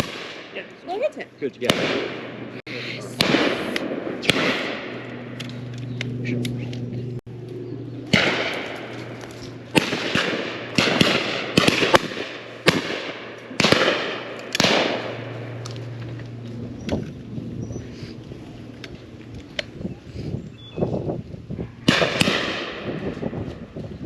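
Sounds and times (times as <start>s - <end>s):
shotguns firing: 0.0s - 0.7s, 1.6s - 2.5s, 3.2s - 5.4s, 8.1s - 15.8s, 21.8s - 23.0s.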